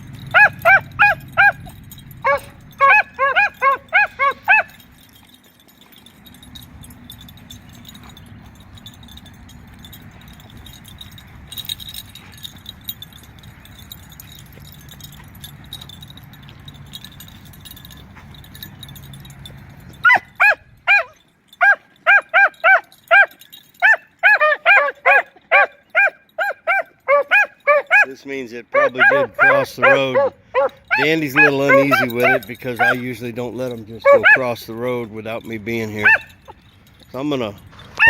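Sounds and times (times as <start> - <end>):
low background rumble: 0.0 - 27.7
dogs baying: 0.0 - 38.0.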